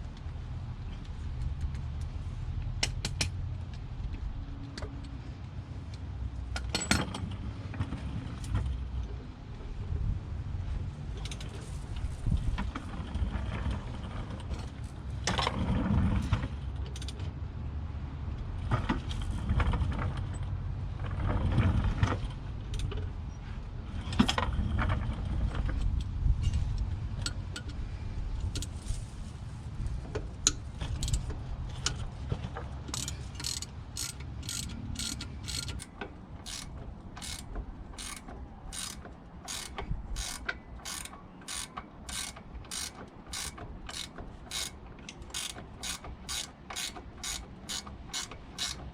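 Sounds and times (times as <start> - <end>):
ratchet wrench clicking: 30.4 - 31.3, 32.9 - 48.9.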